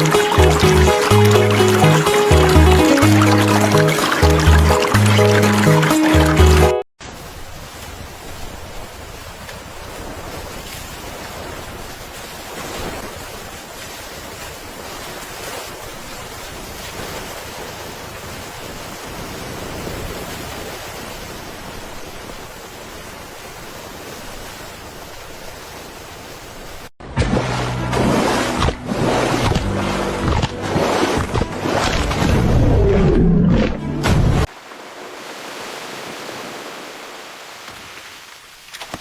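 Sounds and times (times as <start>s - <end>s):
loud music with low notes: 0.0s - 6.8s
rushing water: 0.0s - 39.0s.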